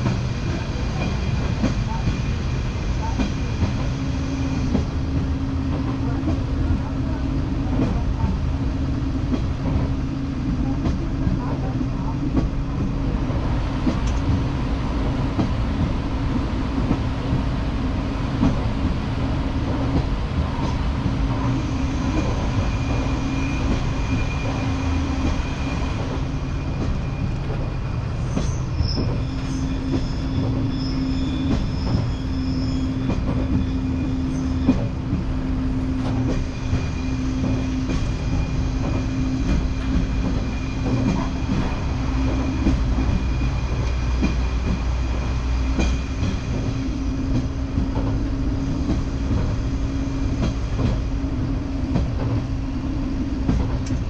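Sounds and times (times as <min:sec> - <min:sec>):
diesel train engine drone: 0:00.0 - 0:54.0
high wheel squeal: 0:21.6 - 0:34.9, 0:36.4 - 0:44.2.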